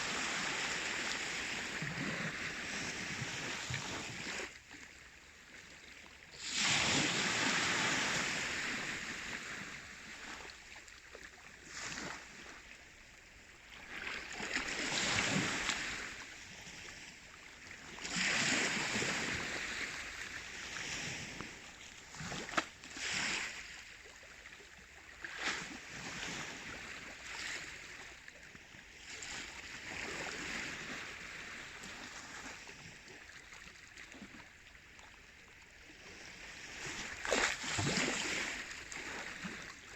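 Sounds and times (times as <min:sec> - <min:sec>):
waves washing in: 0:06.4 - 0:10.5, 0:14.0 - 0:16.9, 0:17.9 - 0:23.9, 0:36.2 - 0:39.9.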